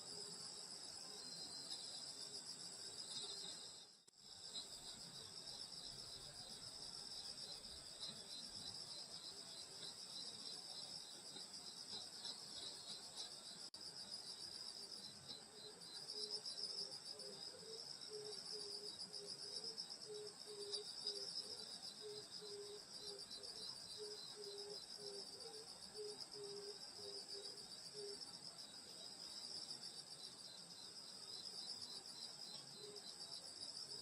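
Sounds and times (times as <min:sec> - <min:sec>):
night insects chirring: 0:00.0 - 0:34.0.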